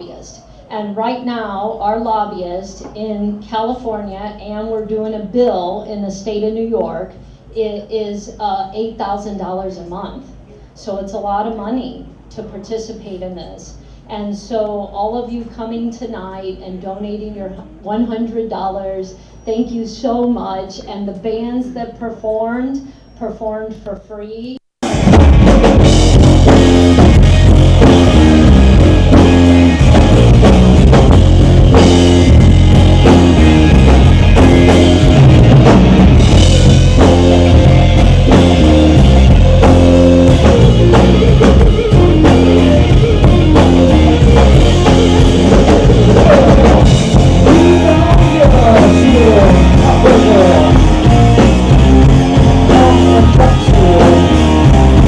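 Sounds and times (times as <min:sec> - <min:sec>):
rock band playing: 0:24.8 - 0:55.0.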